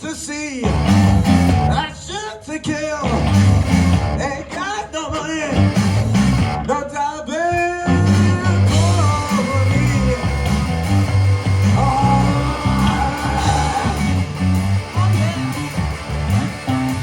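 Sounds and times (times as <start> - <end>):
live rock band playing blues: 0.6 - 1.8, 3.1 - 6.7, 7.7 - 17.0
steady bass line: 0.6 - 1.9, 3.1 - 4.3, 5.5 - 6.7, 7.9 - 17.0
wailing electric guitar: 0.6 - 17.0.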